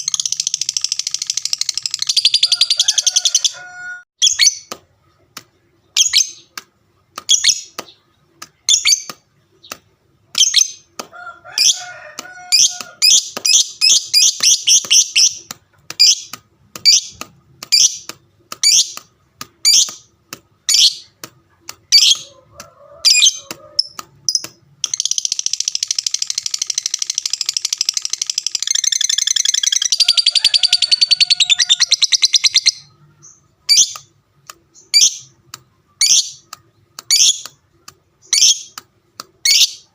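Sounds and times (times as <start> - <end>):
lovebird chirping: 4.2 - 4.7, 5.9 - 6.5, 7.2 - 10.9, 12.4 - 21.2, 23.1 - 34.1, 34.7 - 37.6, 38.2 - 38.8
bird rapid chatter: 11.6 - 22.4.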